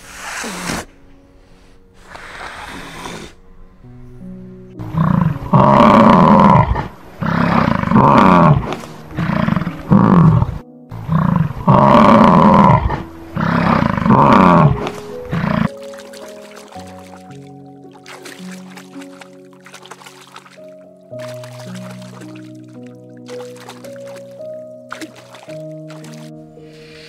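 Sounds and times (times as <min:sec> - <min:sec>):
soft background music: 0:00.0 - 0:27.0
large animal deep calls: 0:04.8 - 0:15.7.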